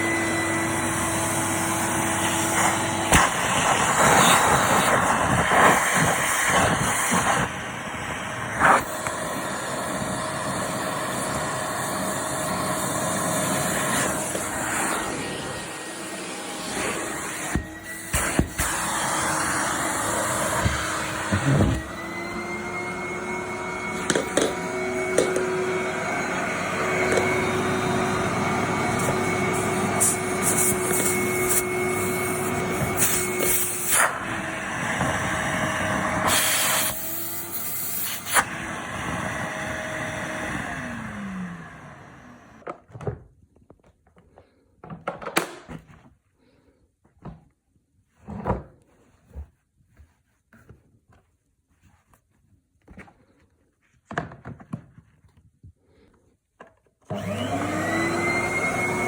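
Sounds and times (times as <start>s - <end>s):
vacuum cleaner running: 0.0s - 42.7s, 57.1s - 59.0s
vacuum motor winding down: 7.4s - 42.6s, 57.1s - 59.0s.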